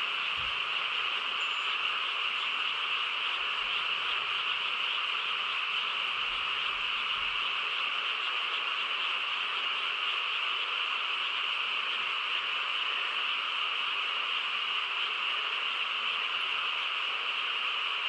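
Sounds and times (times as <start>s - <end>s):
chorus of frogs calling: 0.0s - 13.6s.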